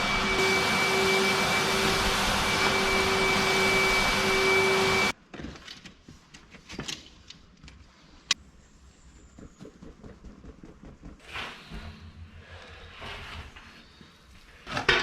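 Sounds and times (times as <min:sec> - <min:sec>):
industrial vacuum cleaner running: 0:00.0 - 0:05.2.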